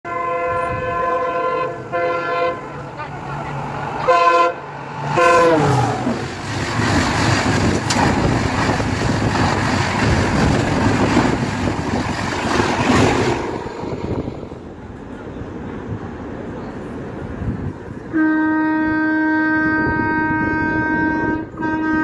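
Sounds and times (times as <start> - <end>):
locomotive horn blasts: 0.0 - 2.8, 4.0 - 6.0, 18.1 - 22.0
express train rushing past: 0.1 - 22.0.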